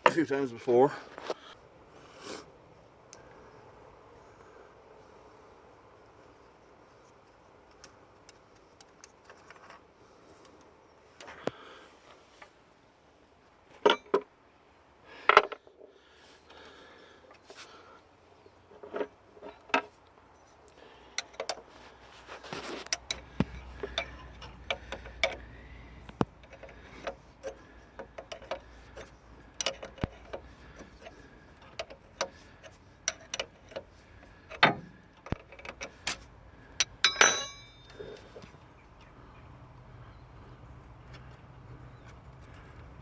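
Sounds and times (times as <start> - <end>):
hand tools clicking on metal: 22.8 - 33.9, 36.8 - 38.0.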